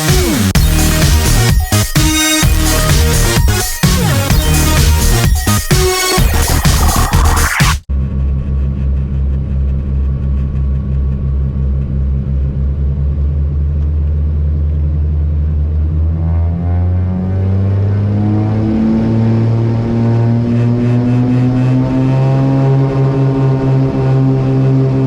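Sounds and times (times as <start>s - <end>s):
piston aircraft engines: 7.9s - 25.0s.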